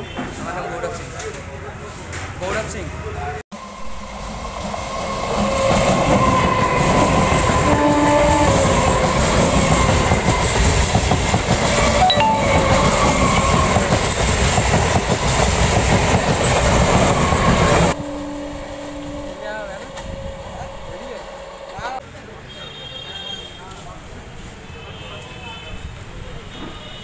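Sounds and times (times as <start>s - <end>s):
electric train passing: 3.6s - 22.0s.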